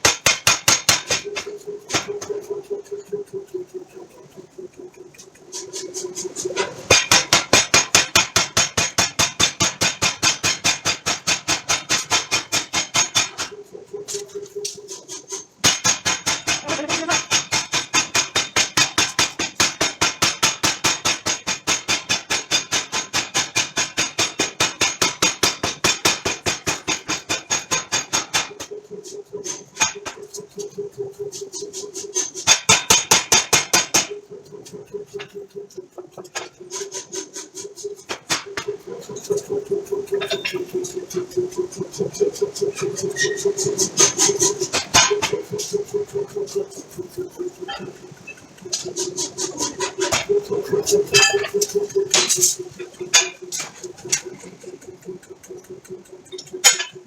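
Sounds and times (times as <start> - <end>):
forging hammer striking steel: 0.0 - 2.4, 6.6 - 13.5, 15.1 - 28.7, 31.5 - 34.2, 40.1 - 41.0, 50.9 - 55.0, 56.3 - 57.0.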